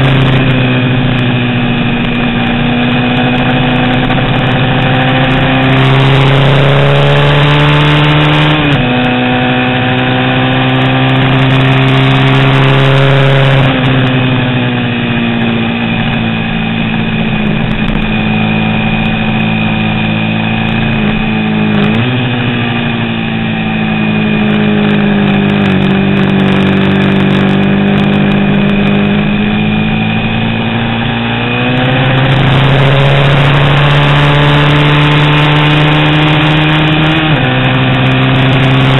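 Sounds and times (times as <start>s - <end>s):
racing motorcycle engine: 0.0s - 38.9s.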